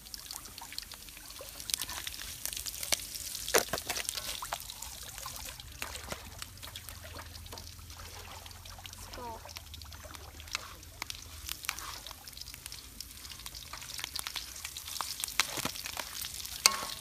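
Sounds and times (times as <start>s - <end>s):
greens sizzling in a wok: 0.0s - 17.0s
wooden spatula scraping a wok: 10.4s - 17.0s.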